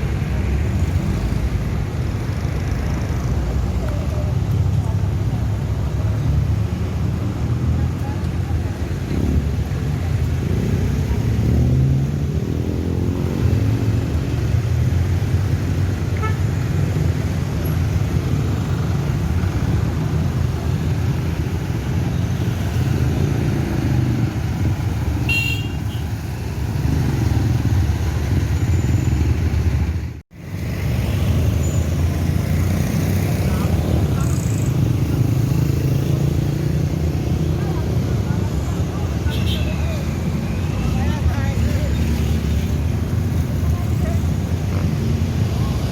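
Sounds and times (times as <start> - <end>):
vehicle engines rumbling: 0.0 - 45.9
car horn toot: 25.3 - 26.0.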